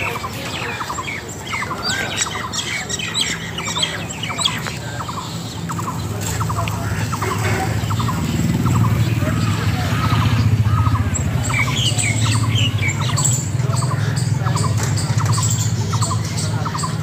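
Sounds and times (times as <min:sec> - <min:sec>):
birds squawking and chirping: 0:00.0 - 0:17.0.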